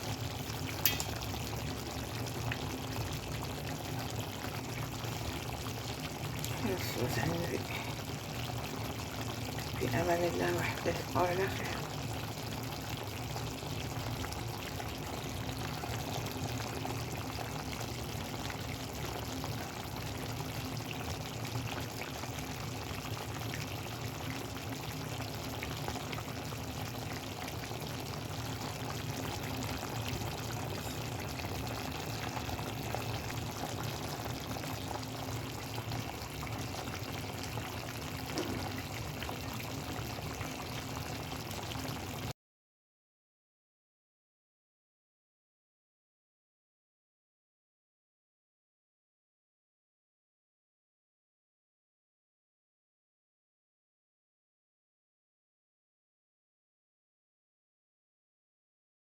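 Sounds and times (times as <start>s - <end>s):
liquid simmering in a pot: 0.0s - 42.4s.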